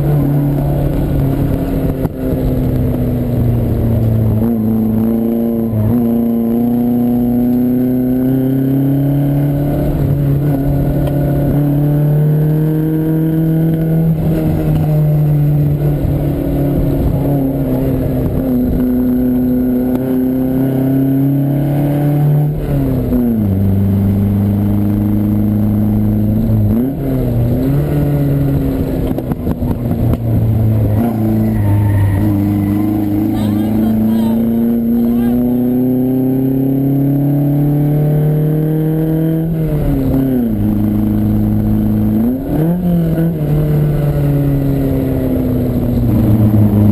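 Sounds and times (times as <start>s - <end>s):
car engine pulling hard: 0.0s - 46.9s.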